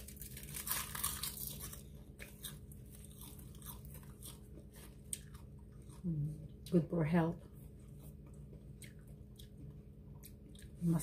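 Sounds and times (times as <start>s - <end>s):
seaweed sheets crunching: 0.0s - 6.0s
chewing crunches: 0.0s - 6.7s, 7.5s - 10.9s.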